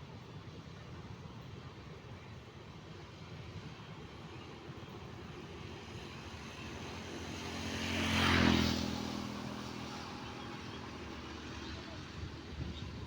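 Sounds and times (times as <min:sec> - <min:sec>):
vehicle passing by: 0:06.8 - 0:10.6.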